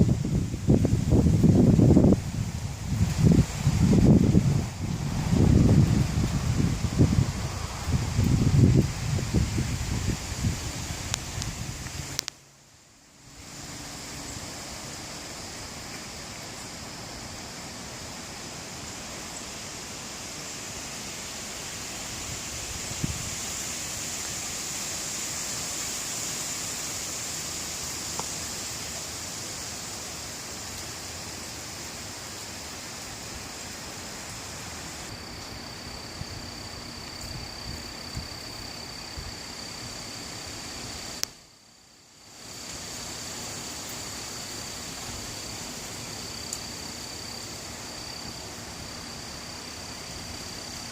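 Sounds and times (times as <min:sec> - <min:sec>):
gusty wind rushing through trees: 0:00.0 - 0:50.9
steady high-pitched hiss: 0:00.0 - 0:50.9.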